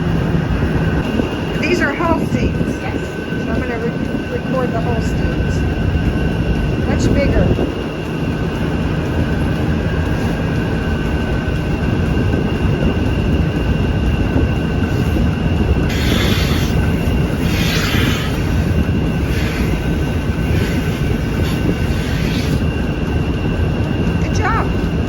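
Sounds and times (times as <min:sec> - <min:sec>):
faint high whine: 0:00.0 - 0:25.0
milking machinery drone: 0:00.0 - 0:25.0
short hissing bursts: 0:15.9 - 0:22.7.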